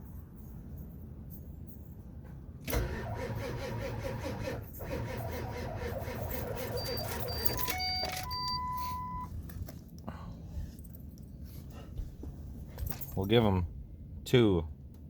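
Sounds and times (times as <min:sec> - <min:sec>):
truck engine cranking: 0:02.6 - 0:08.6.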